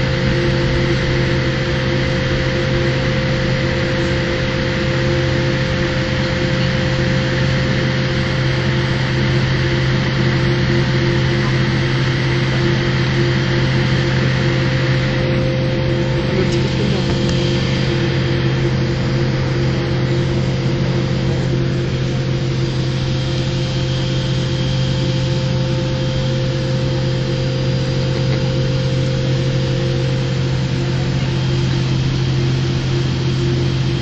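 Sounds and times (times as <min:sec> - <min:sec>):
airliner cabin hum: 0:00.0 - 0:34.0.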